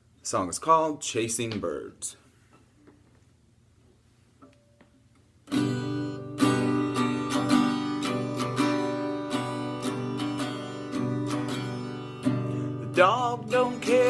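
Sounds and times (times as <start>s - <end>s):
acoustic guitar strumming chords: 5.5s - 14.0s.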